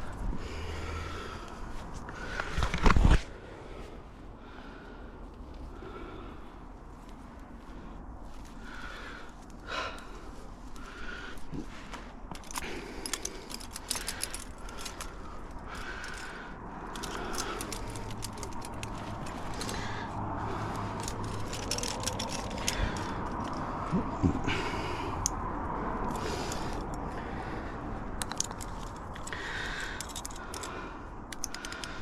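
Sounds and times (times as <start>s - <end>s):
metal climbing gear jangling: 8.2s - 32.0s.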